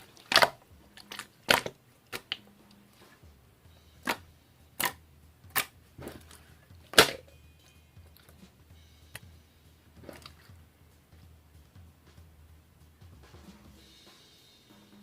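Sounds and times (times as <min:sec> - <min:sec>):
slime crunchy pops and snaps: 0:00.2 - 0:02.4, 0:04.0 - 0:04.2, 0:04.8 - 0:06.2, 0:06.9 - 0:07.2.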